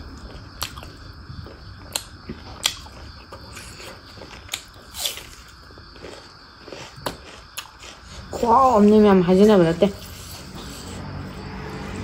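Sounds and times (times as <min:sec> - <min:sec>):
chewing with wet mouth clicks: 0:00.1 - 0:08.3
crunch of biting raw onion: 0:01.8 - 0:08.3.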